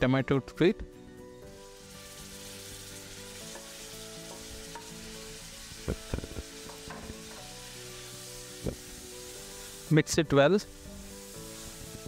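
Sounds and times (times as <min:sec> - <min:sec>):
vegetables sizzling in oil: 0:01.4 - 0:12.0
knocks against pan: 0:05.9 - 0:07.5.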